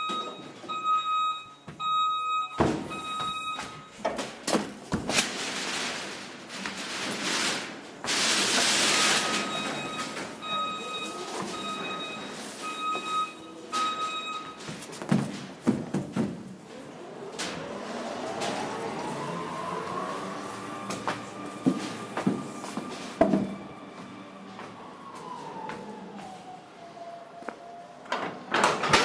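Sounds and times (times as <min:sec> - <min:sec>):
loud rushing noise: 0:16.8 - 0:26.5.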